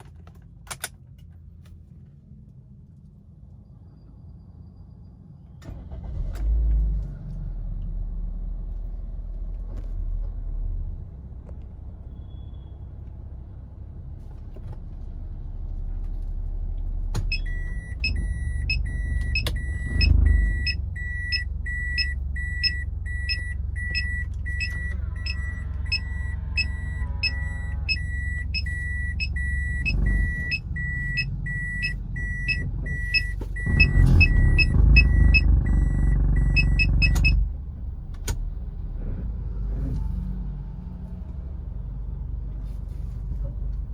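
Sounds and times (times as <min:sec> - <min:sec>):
car engine rumble: 0:00.0 - 0:43.9
reverse warning beeper: 0:17.3 - 0:37.4.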